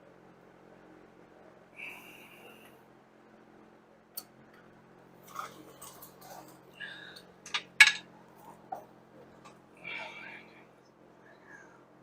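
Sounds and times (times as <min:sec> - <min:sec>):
faint steady hum: 0:00.0 - 0:12.0
hand tools and metal clinking: 0:07.4 - 0:08.1.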